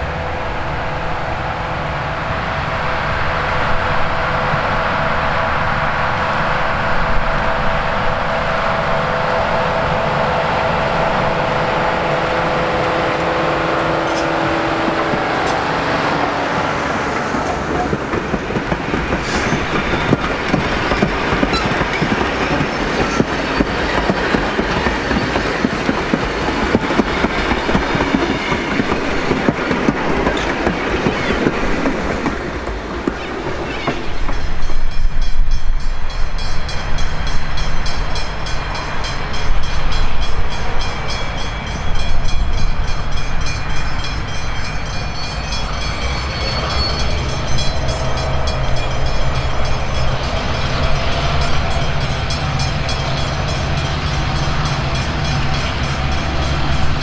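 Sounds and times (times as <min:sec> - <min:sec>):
locomotive engine hum: 0:00.0 - 0:57.0
train wheels clicking over rail joints: 0:14.0 - 0:35.7.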